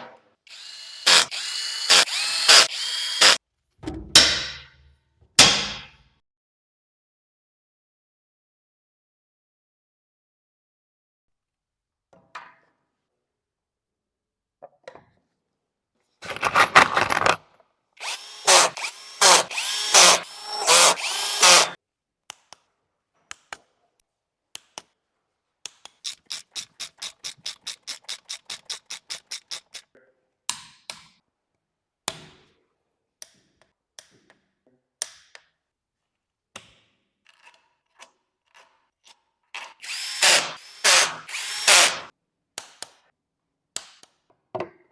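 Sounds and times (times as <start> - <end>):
power tool running: 0.5 - 3.4, 18.0 - 21.8, 39.6 - 42.1.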